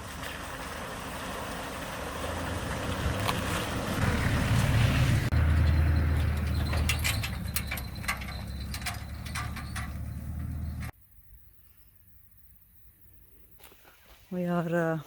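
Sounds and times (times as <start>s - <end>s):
low engine and road rumble: 0.0s - 11.0s
clicks and knocks: 6.1s - 10.9s.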